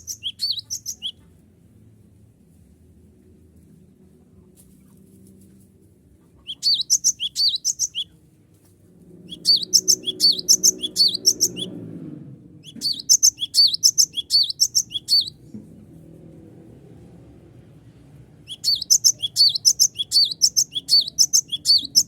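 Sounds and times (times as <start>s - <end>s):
bird singing high notes: 9.3s - 11.7s, 12.6s - 15.4s, 18.5s - 22.0s.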